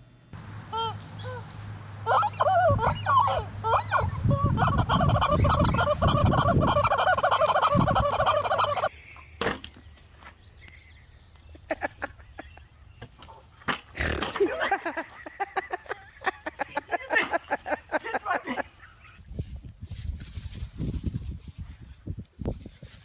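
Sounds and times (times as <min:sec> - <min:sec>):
turkey gobbling: 0:02.0 - 0:08.9.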